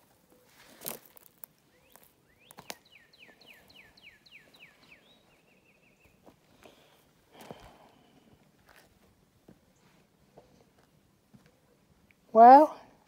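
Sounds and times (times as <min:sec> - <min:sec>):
songbird whistles and trill: 0:01.7 - 0:06.2.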